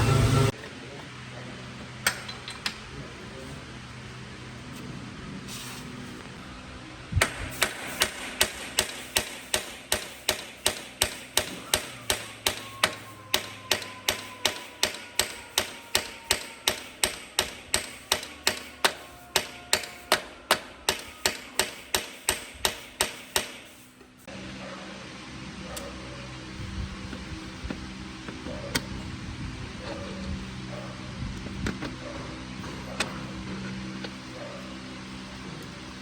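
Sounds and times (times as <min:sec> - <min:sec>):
hammer blows on metal: 0:07.2 - 0:23.8.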